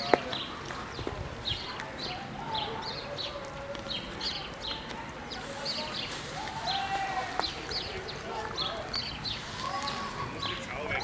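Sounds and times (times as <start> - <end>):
low outdoor background: 0.0 - 11.0.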